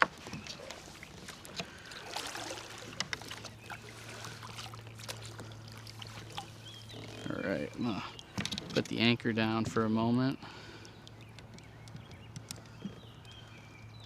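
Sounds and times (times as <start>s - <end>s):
small clicks and knocks on kayak: 0.0s - 1.8s, 2.8s - 3.6s, 8.2s - 10.1s, 10.7s - 13.6s
light water splashing: 0.0s - 9.1s.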